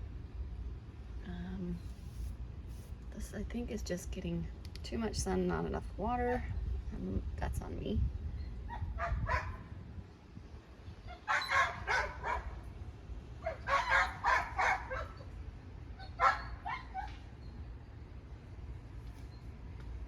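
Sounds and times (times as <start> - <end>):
dog barking: 8.7 - 9.6, 11.2 - 12.6, 13.4 - 15.2, 16.1 - 17.1.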